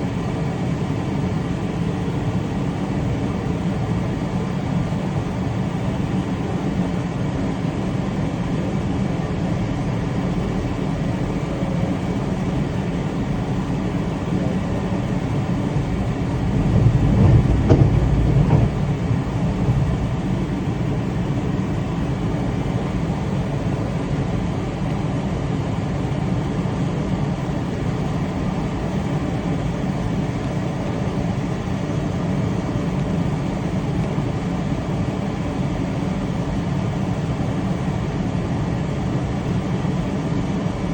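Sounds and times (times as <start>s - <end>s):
train rumbling along track: 13.3s - 23.8s.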